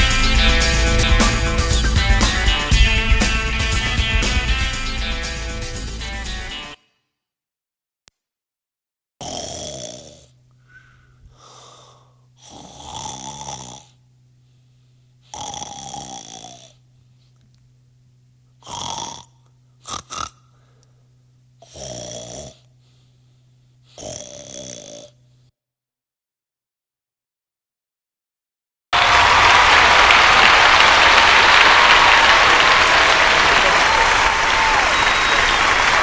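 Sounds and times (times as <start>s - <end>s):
steady low hum: 0.0s - 6.4s, 10.3s - 15.8s, 16.5s - 24.0s, 25.1s - 25.5s
person snoring: 9.2s - 14.0s, 15.2s - 16.8s, 18.6s - 20.9s, 21.6s - 23.1s, 23.9s - 25.2s
short snorts: 9.2s - 14.0s, 15.2s - 17.4s, 18.6s - 20.9s, 21.6s - 25.2s.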